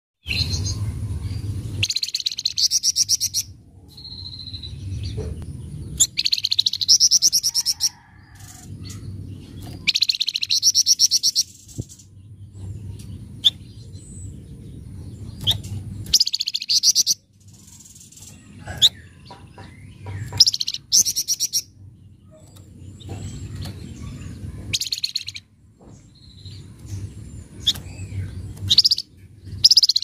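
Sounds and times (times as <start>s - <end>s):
low rumble: 0.2s - 6.2s, 11.4s - 16.2s.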